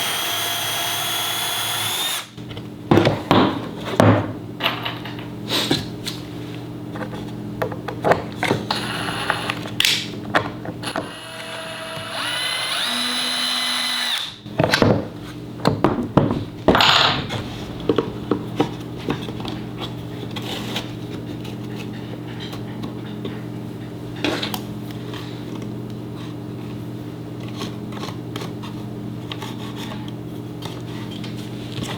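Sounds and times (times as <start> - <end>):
power tool motor running: 0.0 - 2.4, 8.7 - 9.6, 10.8 - 14.4
tools knocking and clattering: 2.9 - 5.4, 7.0 - 8.8, 14.5 - 20.4
steady low hum: 14.4 - 27.4.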